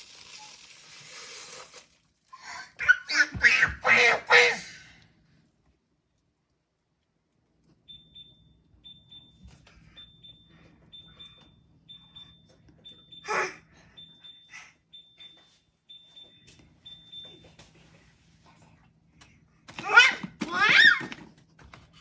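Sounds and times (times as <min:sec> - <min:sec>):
baby squeals and grunts: 0:02.4 - 0:04.9, 0:13.2 - 0:13.6
baby shrieking: 0:02.4 - 0:05.0, 0:19.8 - 0:21.1
refrigerator alarm beeping: 0:07.8 - 0:17.7.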